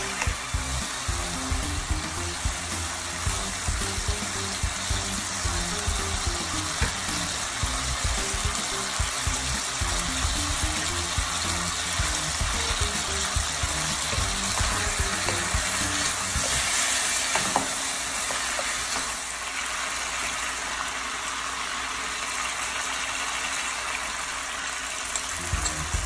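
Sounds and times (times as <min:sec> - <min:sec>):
food sizzling in hot oil: 0:00.0 - 0:26.0
wooden spatula stirring: 0:13.2 - 0:17.6.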